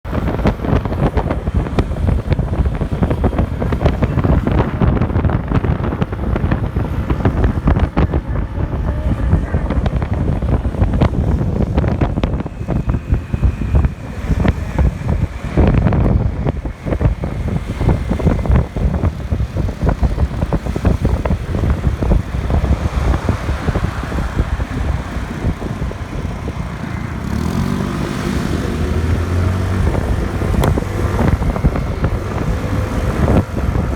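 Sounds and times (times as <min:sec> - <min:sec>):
motorcycle engine running: 0:00.0 - 0:33.9
wind buffeting microphone: 0:00.0 - 0:33.9.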